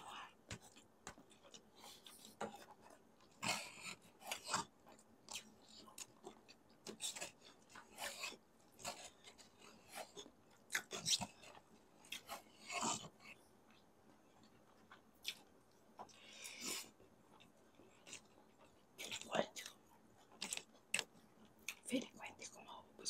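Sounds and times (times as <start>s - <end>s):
person chewing noodles: 0.1s - 21.8s.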